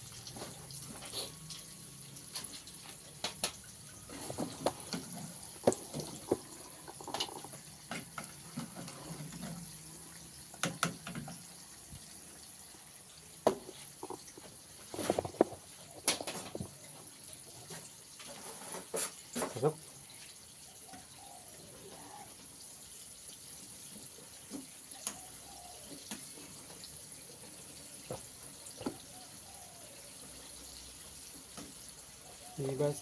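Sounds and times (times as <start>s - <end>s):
water splashing and dripping: 0.0s - 17.1s.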